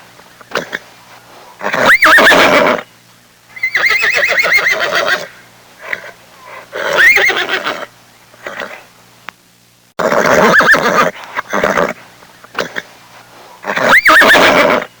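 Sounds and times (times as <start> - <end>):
horse whinnying: 1.6 - 2.8, 3.6 - 5.3, 6.8 - 7.9, 10.0 - 12.0, 13.6 - 14.9.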